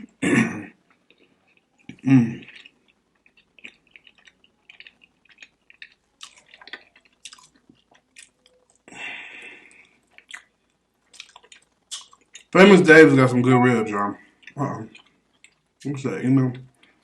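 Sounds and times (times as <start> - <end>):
wet chewing mouth smacks: 1.5 - 8.9, 9.8 - 10.5, 11.1 - 12.5.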